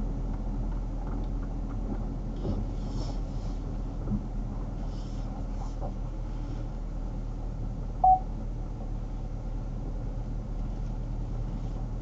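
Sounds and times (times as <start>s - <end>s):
short electronic beep: 8.0s - 8.2s.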